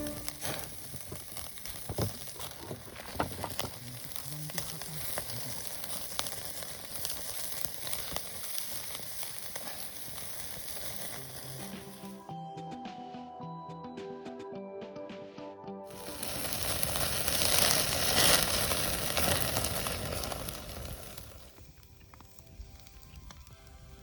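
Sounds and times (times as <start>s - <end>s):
fire pops and crackles: 0.0s - 12.3s, 15.9s - 24.0s
food sizzling in a pan: 0.0s - 12.3s, 15.9s - 21.7s.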